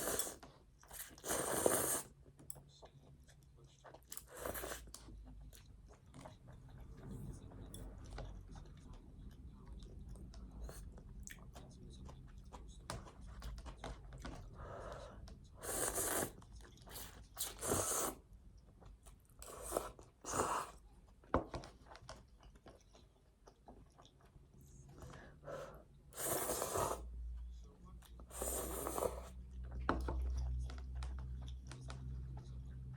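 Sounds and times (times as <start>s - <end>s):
person chewing crunchy food: 21.8s - 24.4s.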